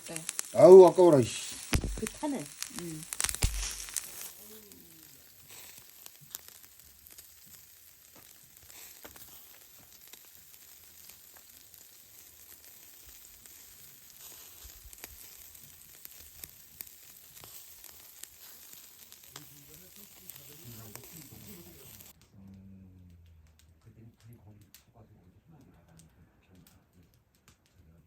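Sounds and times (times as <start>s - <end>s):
meat sizzling over charcoal: 0.0s - 22.2s
small pops and crackles: 0.0s - 28.0s.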